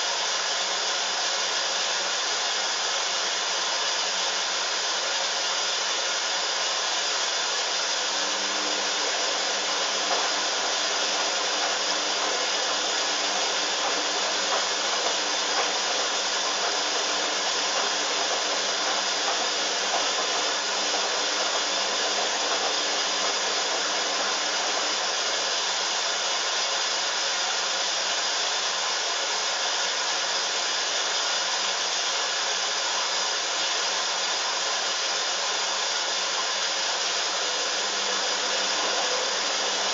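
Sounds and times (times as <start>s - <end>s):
washing machine whirring: 0.0s - 39.9s.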